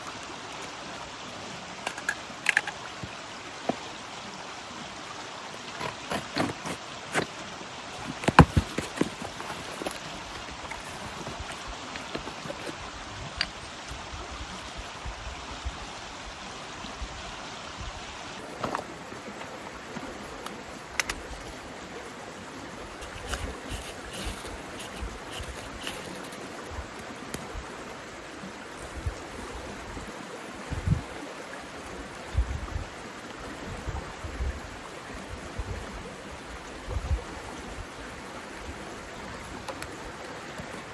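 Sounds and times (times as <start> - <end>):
rushing water: 0.0 - 40.9.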